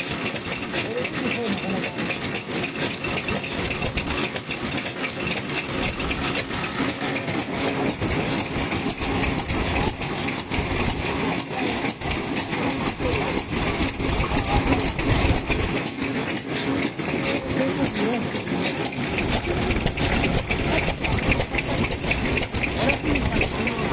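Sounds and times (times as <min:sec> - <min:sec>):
stationary engines chugging: 0:00.0 - 0:23.9.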